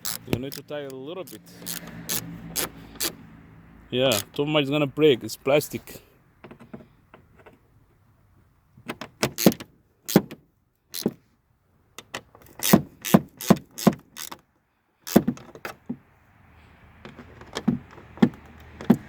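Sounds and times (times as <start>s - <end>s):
plastic and metal parts clicking: 0.0s - 3.2s, 4.1s - 4.4s, 8.8s - 11.2s, 12.0s - 14.4s.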